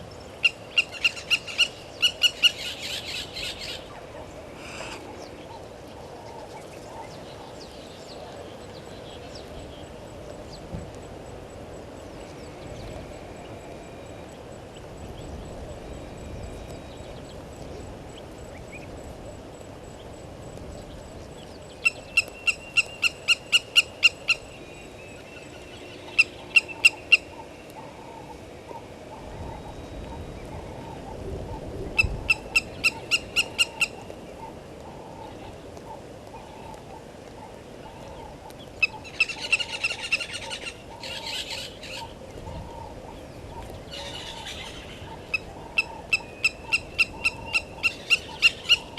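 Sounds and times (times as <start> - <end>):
faint outdoor background: 0.0 - 48.9
bird piping calls: 0.4 - 4.0, 4.6 - 7.3, 21.7 - 36.8, 37.4 - 48.9.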